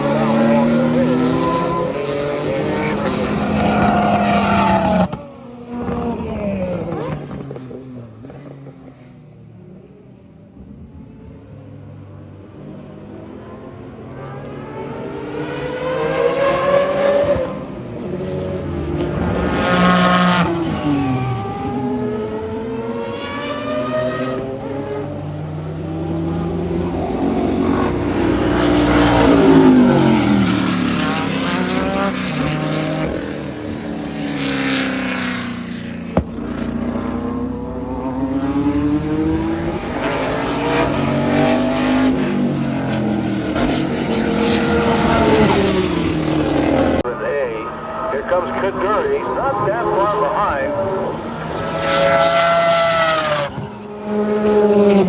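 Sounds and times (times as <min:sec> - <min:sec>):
race cars passing at speed: 0:00.0 - 0:55.0.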